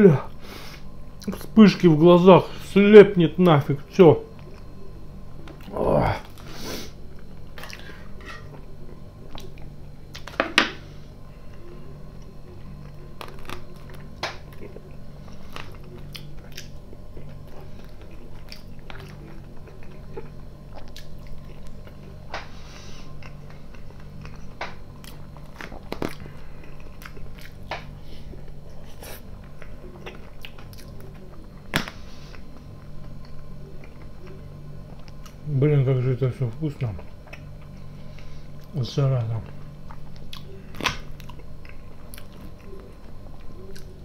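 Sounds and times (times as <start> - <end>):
low hum: 0.0 - 44.0
man chewing salad: 4.3 - 35.5, 36.9 - 38.8, 39.4 - 44.0.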